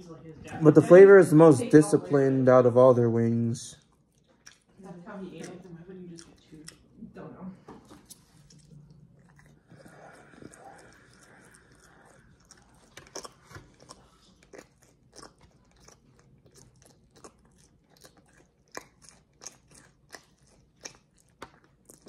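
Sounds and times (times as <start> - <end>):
person chewing with crunches: 3.7 - 7.0, 7.7 - 22.0.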